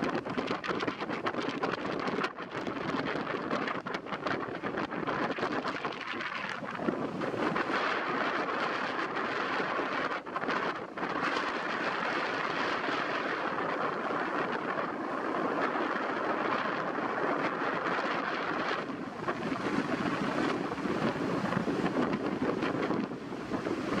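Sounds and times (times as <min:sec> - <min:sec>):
strong sea wind: 0:00.0 - 0:24.0
breaking surf: 0:04.1 - 0:24.0.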